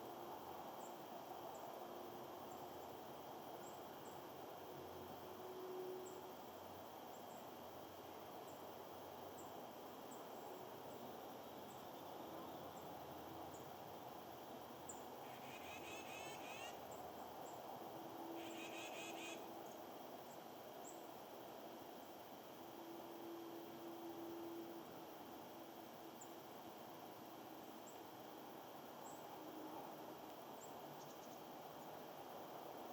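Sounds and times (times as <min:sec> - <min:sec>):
songbirds chirping: 0:00.0 - 0:22.8, 0:24.8 - 0:32.9
outdoor background hiss: 0:00.0 - 0:32.9
bird trills: 0:15.2 - 0:16.8, 0:18.4 - 0:19.5.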